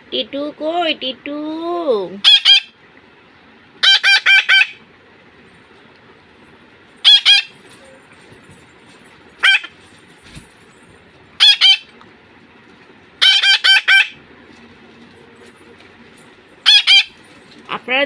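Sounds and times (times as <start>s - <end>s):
parrot squawking: 2.2s - 2.8s, 3.8s - 4.8s, 7.0s - 7.6s, 9.4s - 9.8s, 11.4s - 12.0s, 13.2s - 14.2s, 16.6s - 17.2s.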